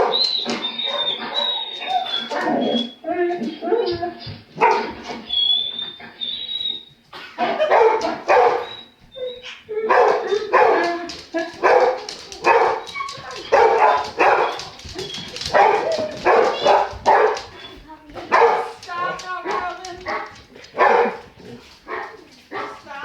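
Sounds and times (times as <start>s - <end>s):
high-pitched dog whine: 0.0s - 6.8s, 8.6s - 10.5s
dogs barking: 0.0s - 23.0s.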